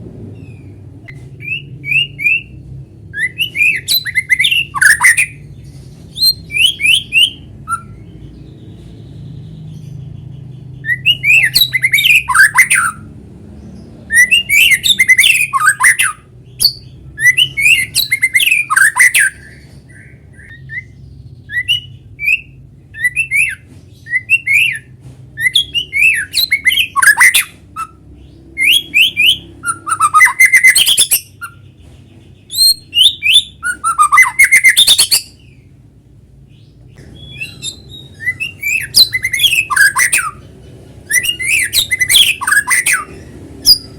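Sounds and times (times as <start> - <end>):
bird singing whistled phrases: 1.1 - 5.4, 10.8 - 13.0, 14.1 - 28.0, 28.6 - 31.6, 32.5 - 35.5, 37.1 - 40.4, 41.1 - 43.9.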